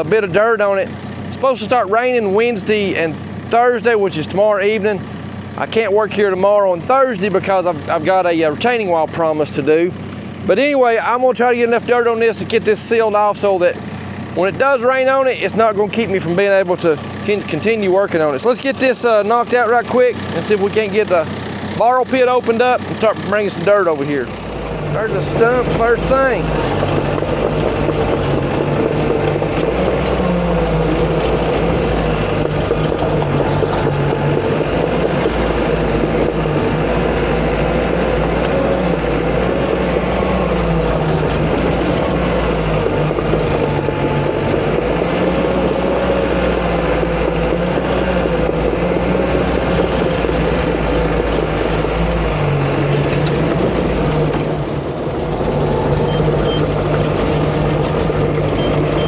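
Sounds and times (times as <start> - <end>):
bulldozer diesel engine: 0.0 - 59.0.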